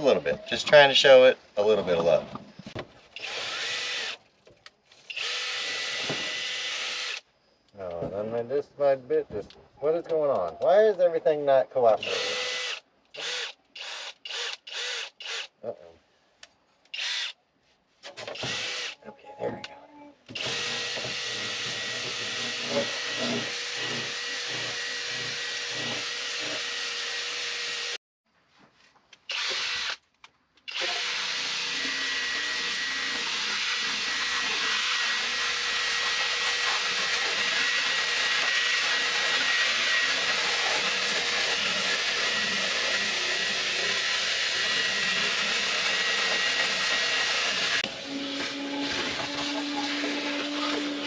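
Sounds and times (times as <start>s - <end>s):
drill wire brush on steel: 20.4s - 28.0s, 30.7s - 51.0s.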